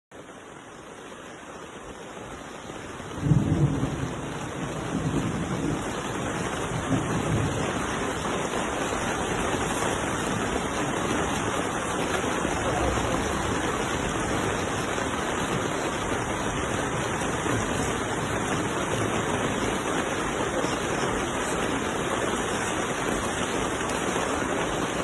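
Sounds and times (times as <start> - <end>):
rushing water: 0.1 - 25.0
heavy low rumble: 12.2 - 19.9.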